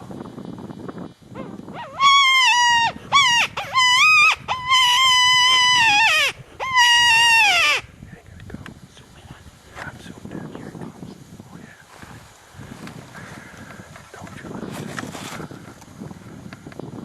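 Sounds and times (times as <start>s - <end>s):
predator call high wailing cries: 1.8s - 7.9s.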